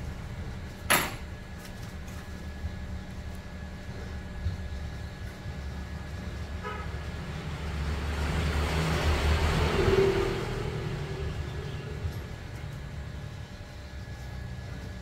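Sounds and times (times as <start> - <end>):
steady low hum: 0.0 - 15.0
vehicle passing by: 7.0 - 12.9.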